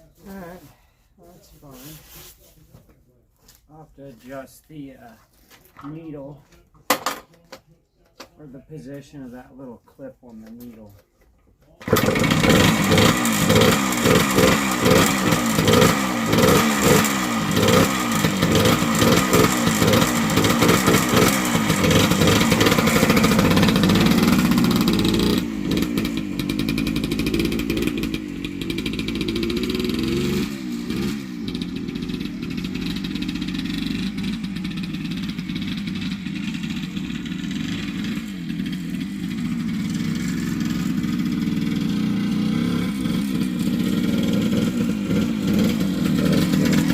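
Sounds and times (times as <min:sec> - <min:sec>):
two-stroke engine revving: 0:11.8 - 0:46.9.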